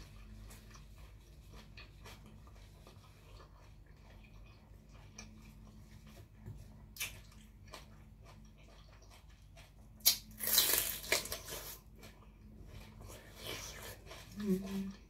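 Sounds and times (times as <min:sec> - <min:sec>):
faint wet chewing: 0:00.0 - 0:15.0
loud crunching chewing: 0:00.0 - 0:15.0.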